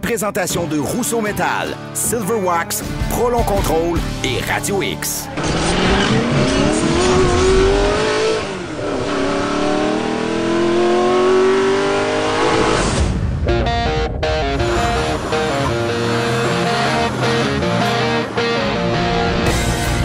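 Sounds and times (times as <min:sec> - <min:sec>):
music: 0:00.0 - 0:08.1, 0:12.6 - 0:20.0
car engine accelerating hard: 0:05.3 - 0:20.0.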